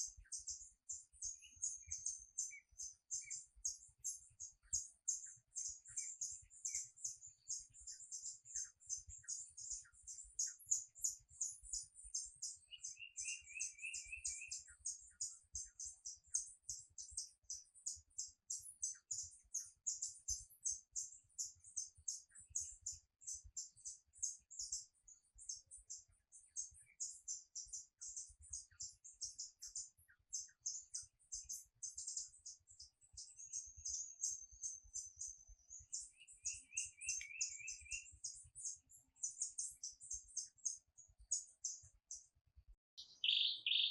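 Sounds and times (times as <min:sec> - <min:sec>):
birds chirping: 0:00.0 - 0:43.9
trilled bird phrase: 0:35.9 - 0:38.3, 0:43.0 - 0:43.9.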